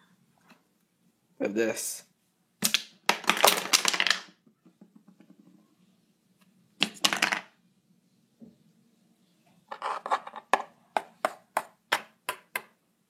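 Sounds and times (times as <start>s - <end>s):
plastic toy pieces clattering: 2.6s - 4.4s.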